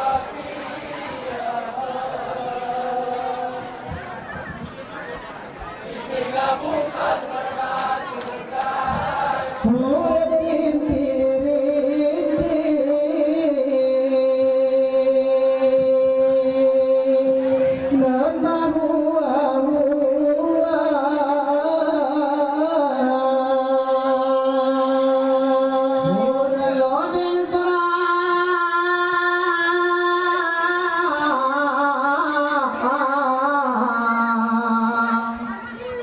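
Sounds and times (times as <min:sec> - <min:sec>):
men chanting in unison: 0:00.0 - 0:03.9, 0:05.9 - 0:19.6.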